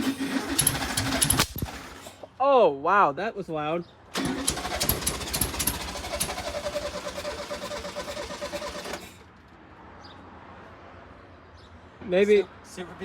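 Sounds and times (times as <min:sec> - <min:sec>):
engine turning over and running roughly: 0:00.0 - 0:02.2, 0:04.2 - 0:09.2.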